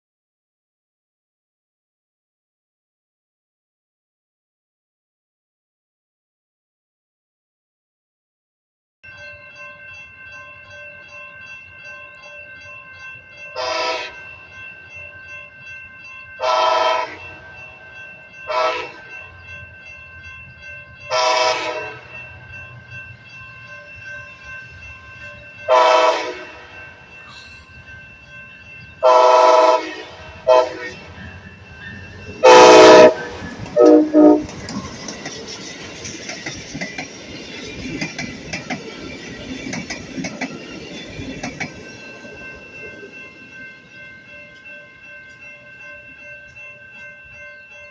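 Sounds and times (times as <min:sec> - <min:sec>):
train wheels on rails: 0:10.2 - 0:47.9
train horn blasts: 0:13.6 - 0:14.2, 0:16.4 - 0:17.3, 0:18.5 - 0:19.0, 0:21.1 - 0:22.1, 0:25.7 - 0:26.6, 0:29.0 - 0:31.2, 0:32.4 - 0:34.6.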